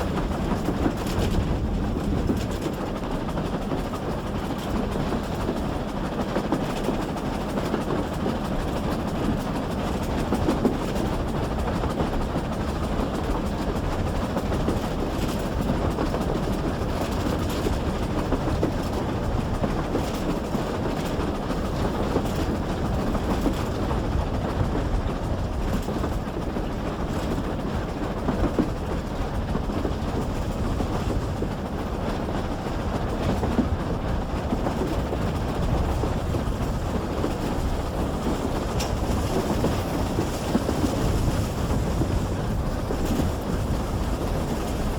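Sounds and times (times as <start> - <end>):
train running noise: 0.0 - 44.9
wheel clicks over rail joints: 33.1 - 44.9.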